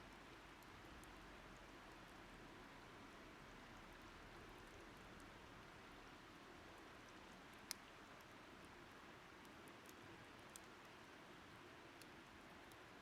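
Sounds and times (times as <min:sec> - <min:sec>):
wood fire crackling: 0:06.6 - 0:08.7, 0:09.4 - 0:11.0.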